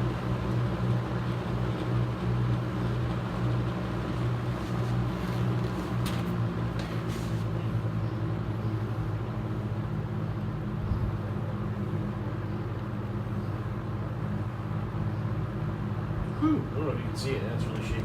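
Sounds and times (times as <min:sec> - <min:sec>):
fan shaking: 0:00.0 - 0:07.8
box fan humming: 0:00.0 - 0:18.0.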